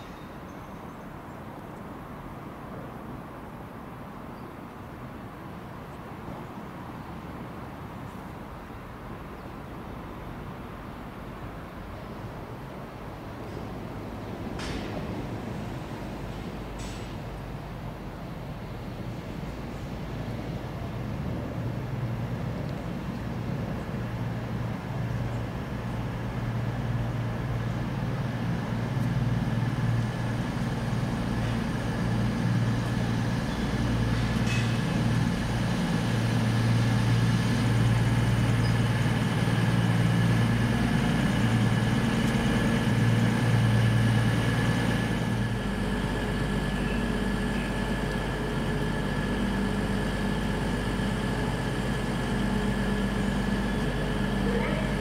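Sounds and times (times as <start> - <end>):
train engine hum: 0.0 - 55.0.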